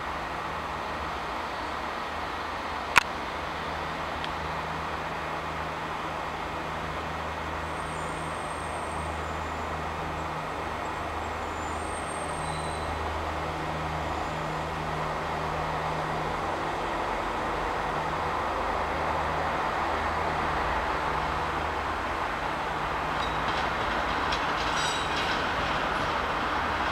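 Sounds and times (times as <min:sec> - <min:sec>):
train rolling: 0:00.0 - 0:26.9
high squeaks: 0:24.4 - 0:26.1.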